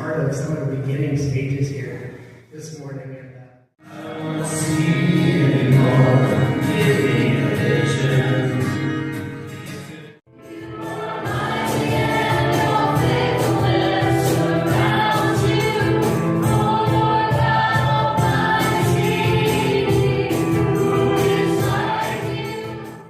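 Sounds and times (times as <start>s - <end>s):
choir singing: 3.8s - 9.1s, 9.7s - 23.0s.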